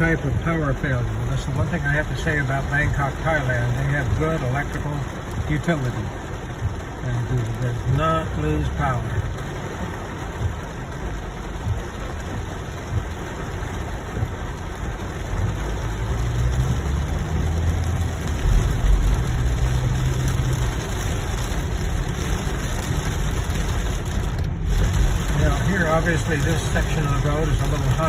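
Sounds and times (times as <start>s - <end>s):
engine and road rumble: 0.0s - 28.0s
rain on car: 0.0s - 28.0s
tyres through water: 0.0s - 28.0s.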